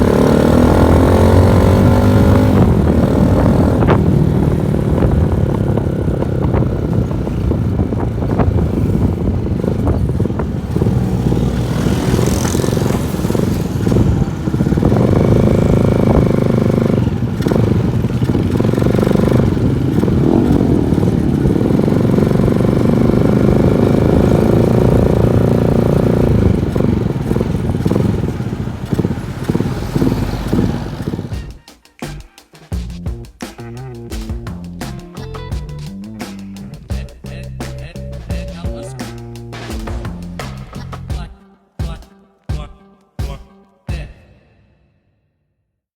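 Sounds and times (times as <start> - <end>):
motorcycle exhaust revving: 0.0 - 31.6
exhaust popping backfires: 0.0 - 32.2, 32.8 - 41.3.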